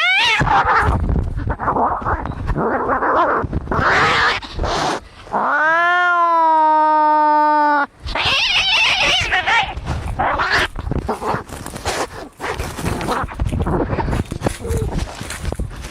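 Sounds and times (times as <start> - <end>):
cat yowling: 0.0 - 0.9, 5.4 - 10.7
cats caterwauling: 0.0 - 11.4.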